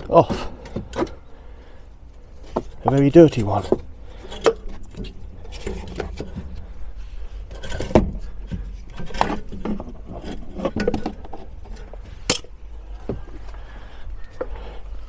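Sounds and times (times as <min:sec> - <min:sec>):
low steady rumble: 0:00.0 - 0:15.0
metallic knocks and scrapes of tools: 0:09.0 - 0:12.6.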